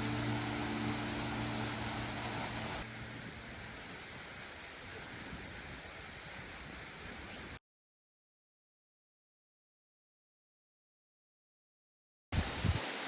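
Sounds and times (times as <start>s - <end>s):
waterfall rushing: 0.0s - 7.3s, 12.4s - 13.0s.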